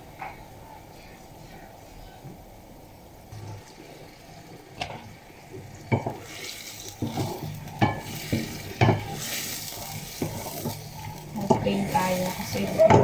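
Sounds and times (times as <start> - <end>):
food sizzling in pan: 0.0 - 13.0
spatula knocking against pan: 7.8 - 9.1.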